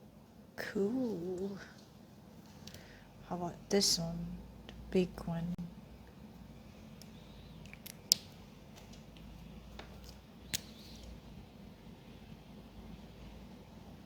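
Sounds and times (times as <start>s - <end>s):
small sharp clicks: 7.0s - 11.2s.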